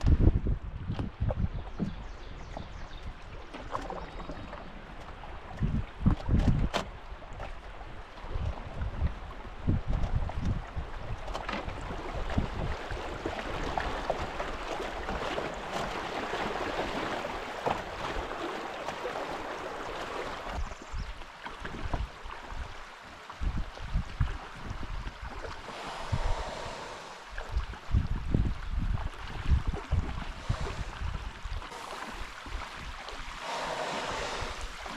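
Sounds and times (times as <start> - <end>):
wind buffeting microphone: 0.0 - 4.4, 5.2 - 15.5, 23.4 - 34.9
river water rushing: 25.6 - 27.4, 30.4 - 34.9.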